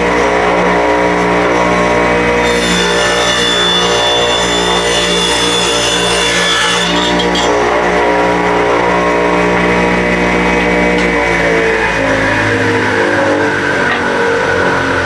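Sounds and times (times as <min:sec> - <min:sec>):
electric saw ripping wood: 0:02.3 - 0:11.2.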